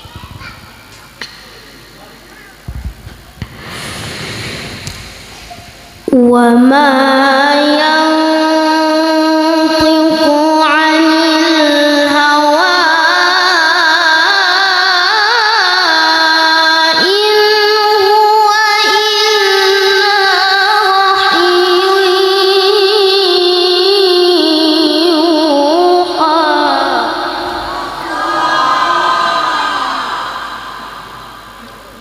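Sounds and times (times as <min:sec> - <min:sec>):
child reciting melodically: 0:00.0 - 0:01.2, 0:06.1 - 0:29.6.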